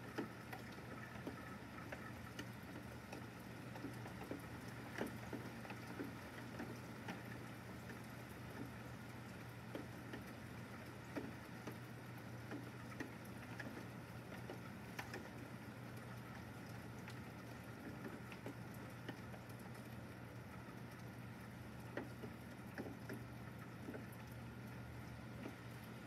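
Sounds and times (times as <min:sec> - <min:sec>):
raindrops tapping: 0:00.0 - 0:26.0
steady rain falling: 0:00.0 - 0:26.0.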